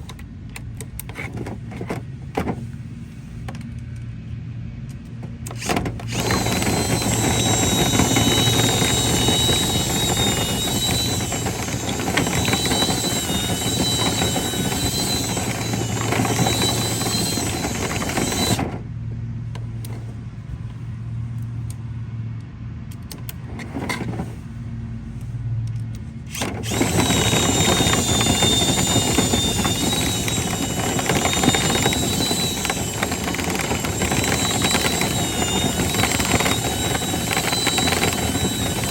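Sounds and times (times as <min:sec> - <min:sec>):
motor high whine: 0:05.5 - 0:18.9, 0:26.3 - 0:38.9.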